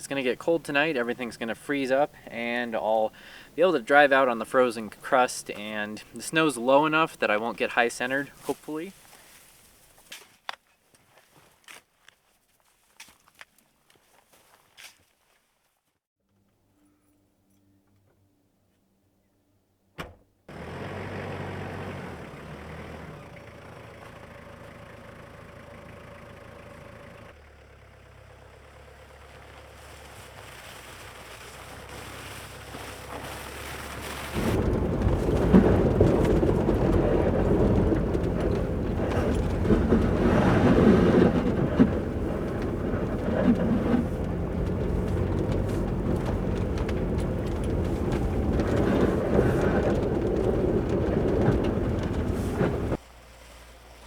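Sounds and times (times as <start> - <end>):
rumbling road noise: 0.0 - 8.9, 28.1 - 53.0
vehicle engine running: 20.5 - 53.0
knocks and bumps: 34.3 - 53.0.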